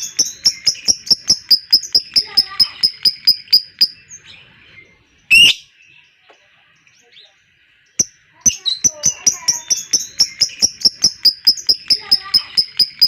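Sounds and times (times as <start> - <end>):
lovebird chatter: 0.0 - 5.7, 6.6 - 13.0
faint bird chirping: 0.0 - 13.0
harsh bird call: 5.3 - 5.7.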